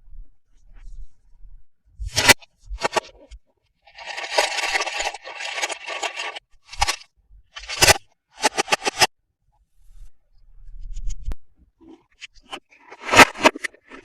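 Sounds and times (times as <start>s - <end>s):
plastic packaging crinkling: 4.0s - 7.0s
sharp clicks: 7.6s - 9.1s.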